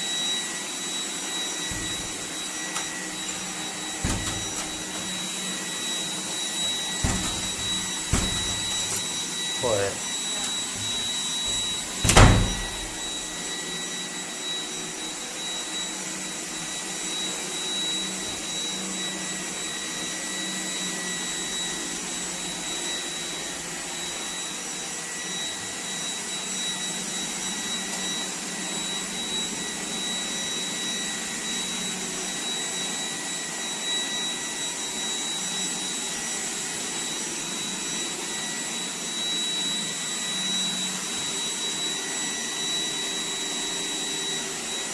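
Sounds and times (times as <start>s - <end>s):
robot vacuum whirring: 0.0s - 23.0s.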